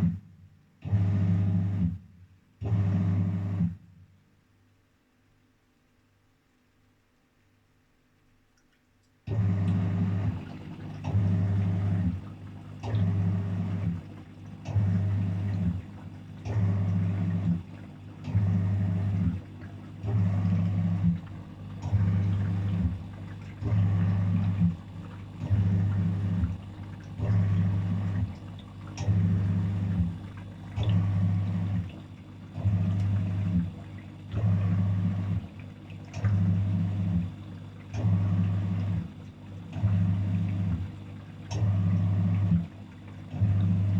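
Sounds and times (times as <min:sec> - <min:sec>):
washing machine motor humming: 0:09.3 - 0:43.9.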